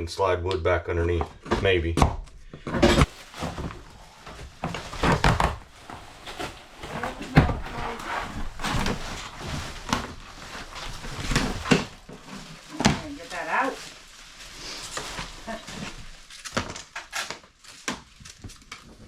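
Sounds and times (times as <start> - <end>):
knocks and thuds of panelling pried off: 1.4 - 13.2.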